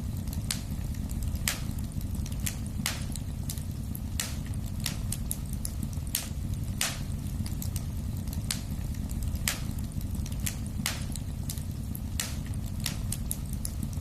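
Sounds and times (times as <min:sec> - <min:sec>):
fire crackling and popping: 0:00.0 - 0:14.0
low rumble of flames: 0:00.0 - 0:14.0.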